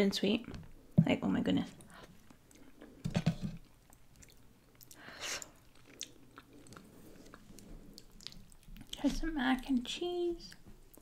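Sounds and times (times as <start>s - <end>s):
wet chewing sounds: 3.6s - 9.2s.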